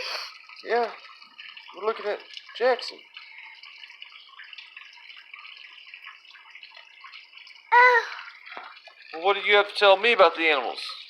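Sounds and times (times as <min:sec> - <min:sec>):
water trickling: 0:00.0 - 0:11.0
small child vocal sound: 0:07.7 - 0:08.4.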